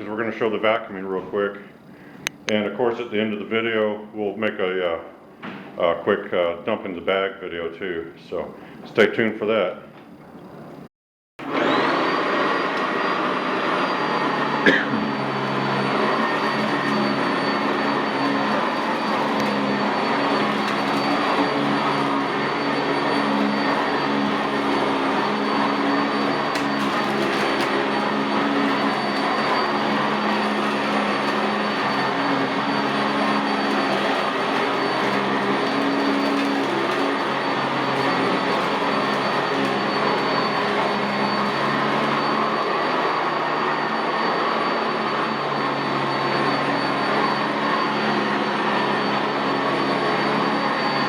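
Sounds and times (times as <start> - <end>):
vacuum cleaner running on carpet: 11.4 - 51.0.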